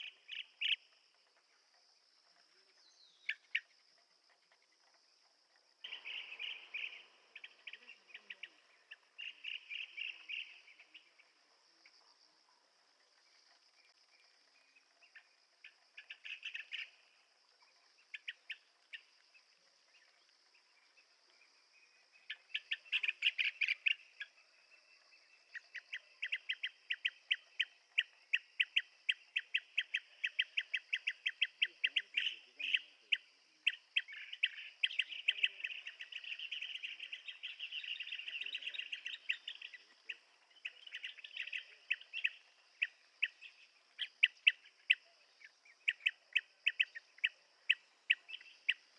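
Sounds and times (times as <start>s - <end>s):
bird calling: 0.0s - 1.0s, 5.8s - 11.4s.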